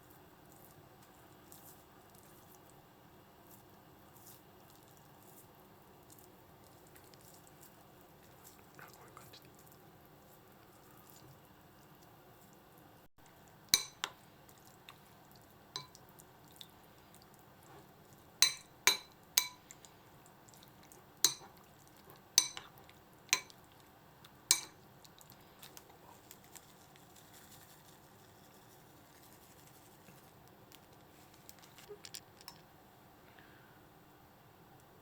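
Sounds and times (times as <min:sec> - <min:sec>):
utensils clinking against a dish: 0:18.4 - 0:19.6, 0:22.4 - 0:22.7, 0:24.5 - 0:24.8.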